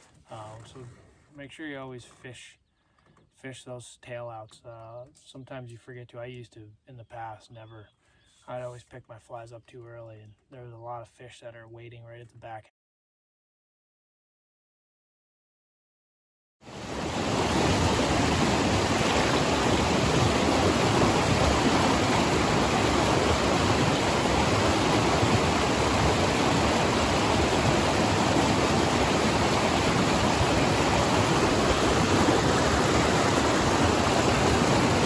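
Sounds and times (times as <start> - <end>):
river rushing over rocks: 16.7 - 35.0.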